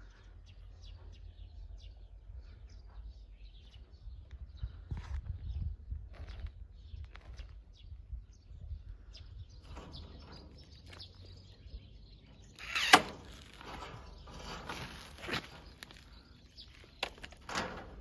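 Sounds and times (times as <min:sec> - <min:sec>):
handling and scraping noises: 0:09.6 - 0:18.0.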